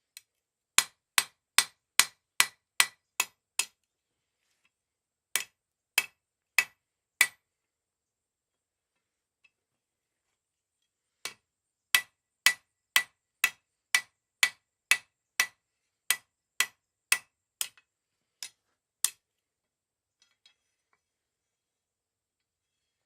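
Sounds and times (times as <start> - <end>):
hammer striking steel on anvil: 0.8 - 3.7, 5.4 - 7.4, 11.2 - 17.8.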